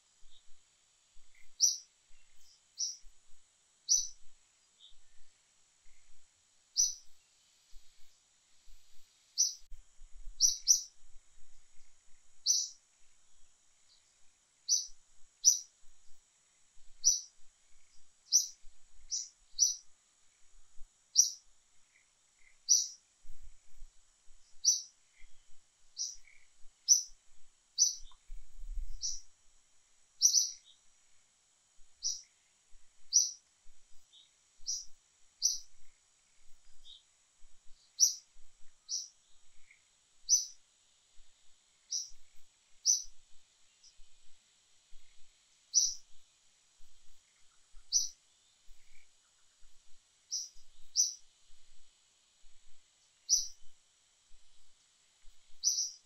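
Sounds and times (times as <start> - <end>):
faint steady high hum: 0.0 - 56.0
bird chirping: 1.2 - 9.7, 10.3 - 11.0, 11.7 - 12.8, 13.4 - 15.8, 16.8 - 23.4, 24.4 - 27.2, 27.8 - 29.3, 30.2 - 30.9, 32.0 - 40.6, 41.8 - 46.2, 46.8 - 51.3, 52.7 - 53.7, 55.5 - 56.0.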